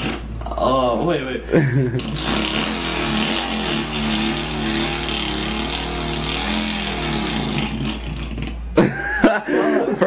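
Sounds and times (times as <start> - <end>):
man imitating engine with mouth: 0.0 - 0.6, 2.0 - 9.0.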